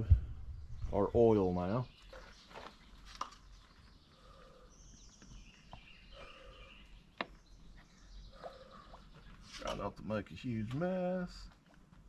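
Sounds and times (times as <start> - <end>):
faint bird chirps: 0.5 - 9.8.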